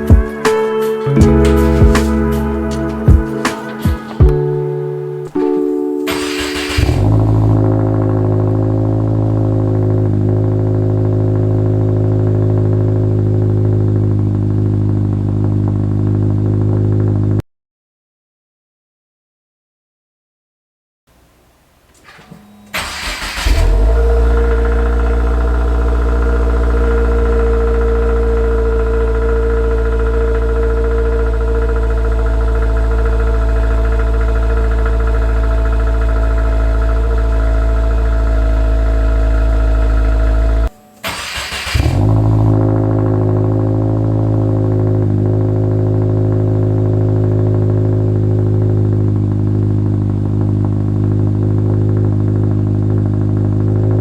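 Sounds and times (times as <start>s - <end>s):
car engine idling: 0.0s - 17.3s, 21.1s - 54.0s
car engine starting: 0.0s - 17.4s, 21.1s - 54.0s
engine cranking: 1.2s - 8.4s, 21.8s - 43.5s.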